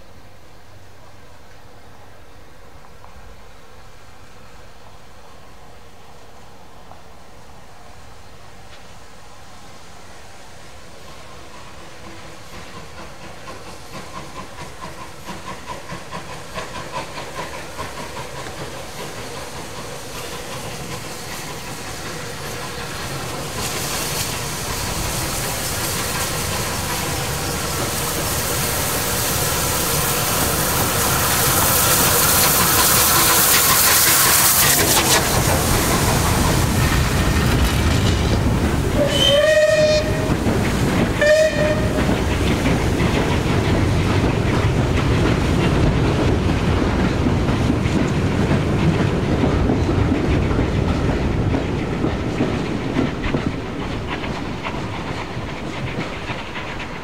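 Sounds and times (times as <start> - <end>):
train passing: 0.0 - 57.0
train horn blasts: 39.0 - 40.4, 41.2 - 42.0.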